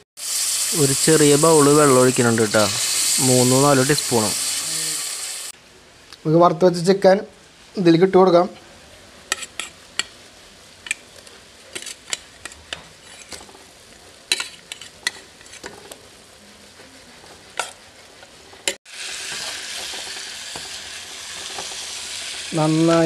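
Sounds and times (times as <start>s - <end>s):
frying sizzle: 0.0s - 5.6s, 6.7s - 23.0s
ladle scraping against bowl: 11.7s - 13.5s.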